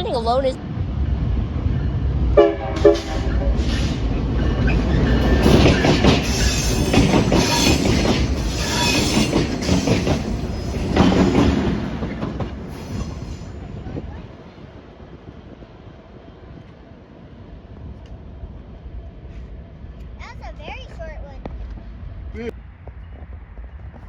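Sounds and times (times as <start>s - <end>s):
train wheels clattering over rails: 2.8s - 14.2s
train wheels squealing: 2.9s - 13.8s.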